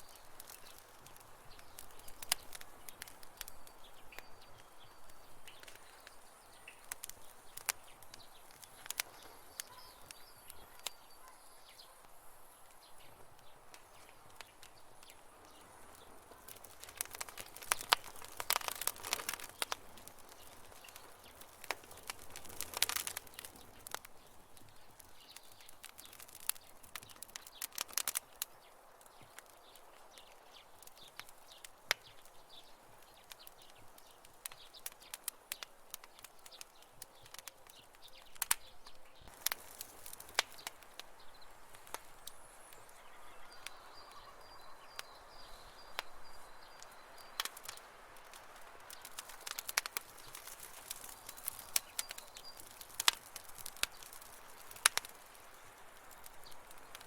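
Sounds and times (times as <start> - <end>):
campfire crackling and popping: 0.0 - 57.0
bird chirps: 1.5 - 12.1, 40.5 - 47.9.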